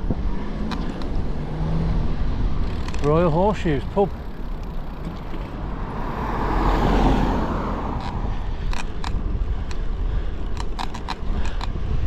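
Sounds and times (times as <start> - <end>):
wind rumble on microphone: 0.0 - 12.0
sharp clicks: 0.6 - 1.1, 8.0 - 11.8
car passing close by: 4.9 - 8.5.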